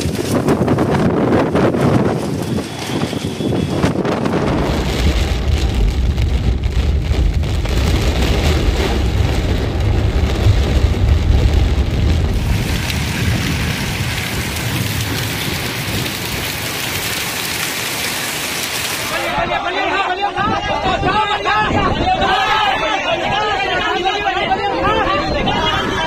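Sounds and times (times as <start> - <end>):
heavy low rumble: 0.0 - 16.9
wind buffeting microphone: 0.0 - 17.6, 20.3 - 26.0
rain: 0.0 - 26.0.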